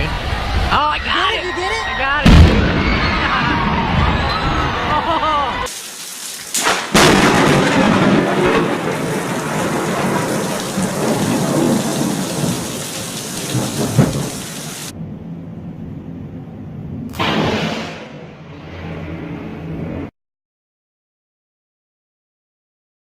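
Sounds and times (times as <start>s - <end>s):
thunder cracking and rumbling: 2.2s - 4.8s, 6.6s - 15.2s
heavy rain: 5.2s - 15.0s.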